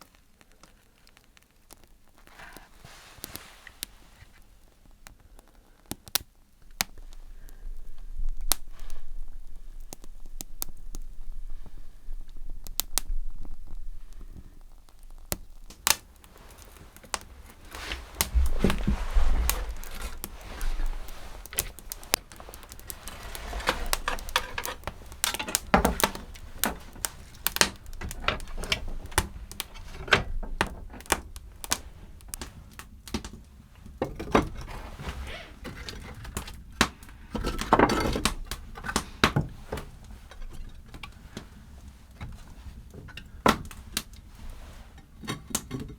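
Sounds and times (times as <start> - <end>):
rustling: 0.0 - 45.6
objects clicking and tapping: 15.1 - 33.4.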